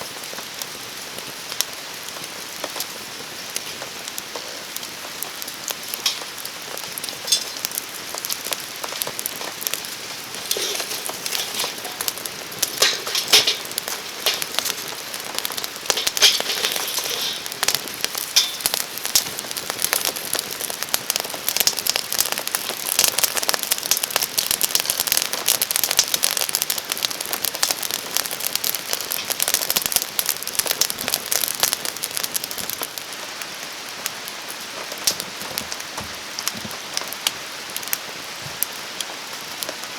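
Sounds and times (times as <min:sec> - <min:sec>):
campfire crackling and popping: 0:00.0 - 0:39.9
steady rainfall: 0:00.0 - 0:39.9.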